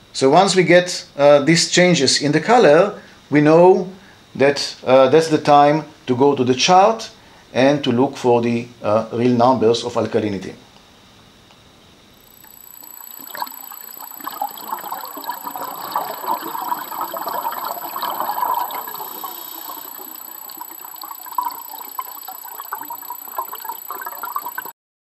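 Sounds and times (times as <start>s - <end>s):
faint high whine: 0.0s - 24.8s
water trickling and bubbling: 12.3s - 24.7s.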